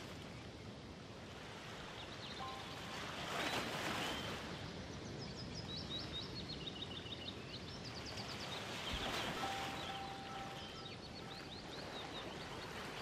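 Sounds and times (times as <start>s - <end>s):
bird chirping: 5.1s - 13.0s.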